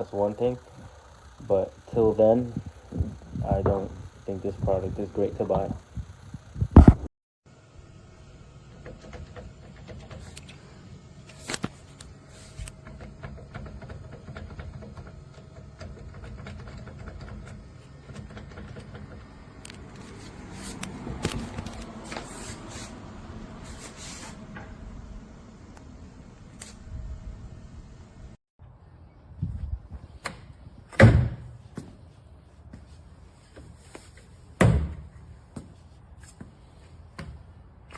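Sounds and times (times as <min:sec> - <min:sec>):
steady low rumble: 0:00.0 - 0:07.1, 0:19.9 - 0:28.4.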